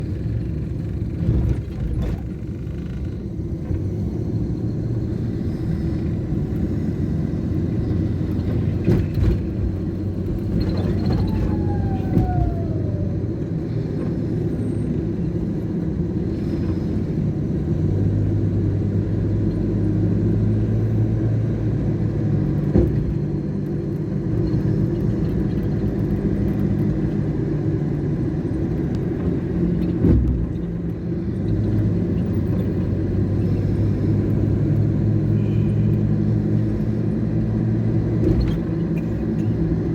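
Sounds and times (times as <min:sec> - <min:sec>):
city road traffic: 0:00.0 - 0:39.9
wind rumbling on microphone: 0:07.8 - 0:14.2.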